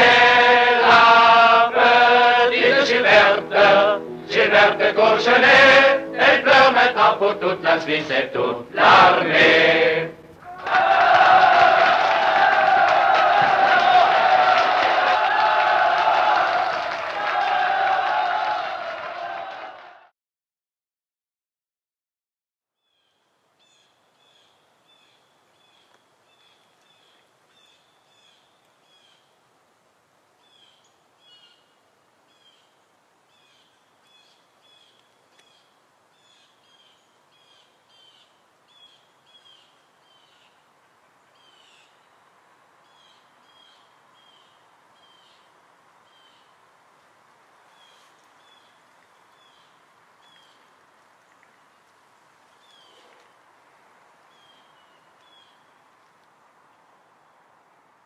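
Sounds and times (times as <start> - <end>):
outdoor hiss: 0.0 - 18.2.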